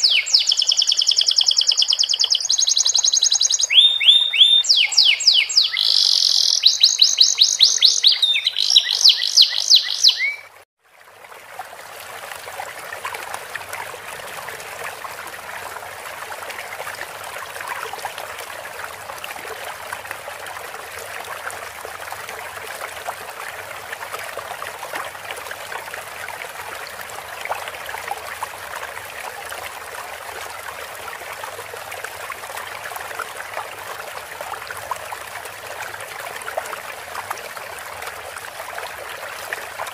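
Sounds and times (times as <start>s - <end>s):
canary singing fast trill: 0.0s - 10.5s
running water trickling: 0.0s - 39.9s.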